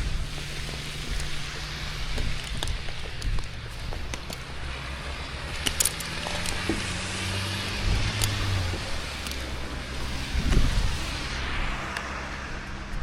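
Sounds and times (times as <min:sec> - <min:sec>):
sharp clicks: 0:08.0 - 0:08.6.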